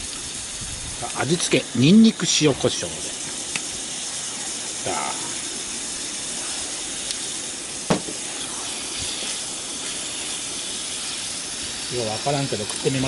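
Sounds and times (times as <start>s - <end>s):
meat sizzling in a skillet: 0.0s - 13.0s
sharp knock: 7.9s - 8.2s.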